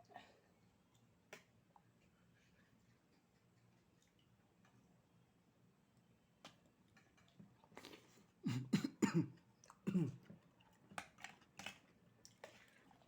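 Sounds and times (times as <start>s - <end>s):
person coughing: 8.5s - 9.3s, 9.9s - 10.2s.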